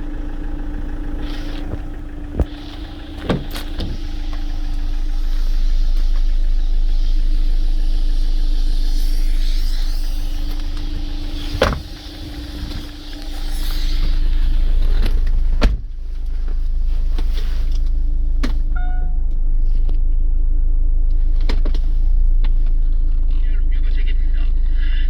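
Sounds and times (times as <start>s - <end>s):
car engine idling: 0.0s - 25.0s
short beep: 18.8s - 19.4s.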